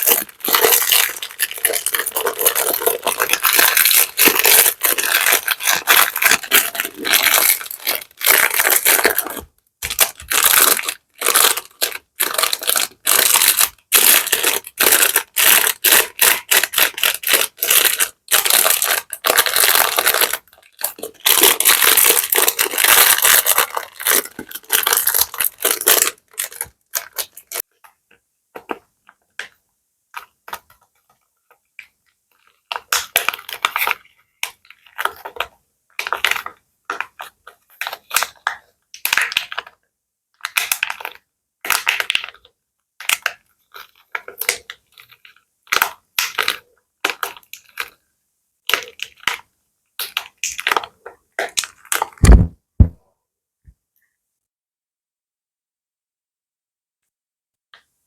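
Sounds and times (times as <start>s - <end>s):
plastic bag crinkling: 0.0s - 27.6s, 51.6s - 53.0s.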